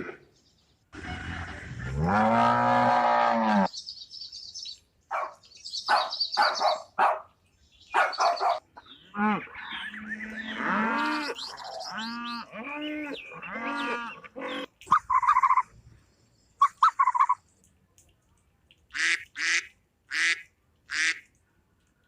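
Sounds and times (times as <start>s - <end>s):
cattle mooing: 1.0s - 3.7s, 9.1s - 14.7s.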